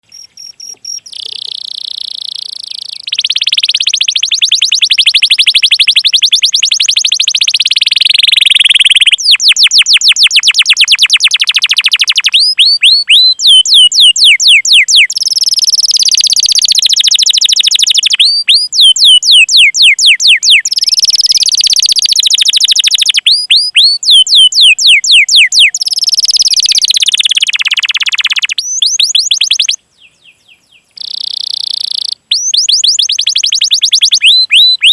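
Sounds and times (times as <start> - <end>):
canary singing: 0.0 - 34.9.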